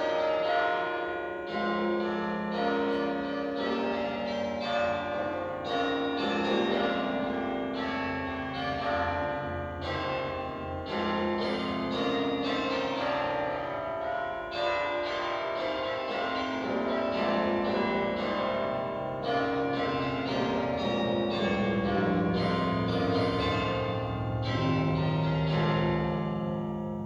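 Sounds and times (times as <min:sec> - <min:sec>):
bells ringing: 0:00.0 - 0:27.0.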